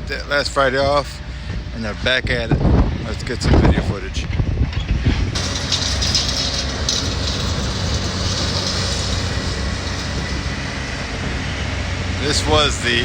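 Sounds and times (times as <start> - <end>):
diesel engine rumble: 4.6 - 13.0
loud shifting high hiss: 5.4 - 11.3.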